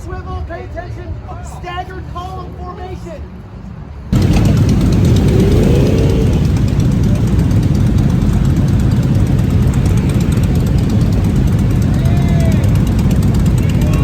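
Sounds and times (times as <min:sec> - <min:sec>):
motorcycle engines rumbling: 0:03.9 - 0:14.0.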